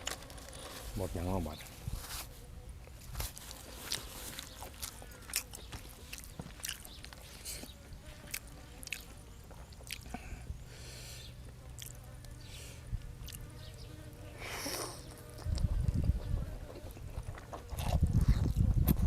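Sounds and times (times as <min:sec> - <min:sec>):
person chewing food: 0:03.3 - 0:10.2, 0:11.7 - 0:12.1, 0:13.2 - 0:13.5, 0:14.7 - 0:18.7.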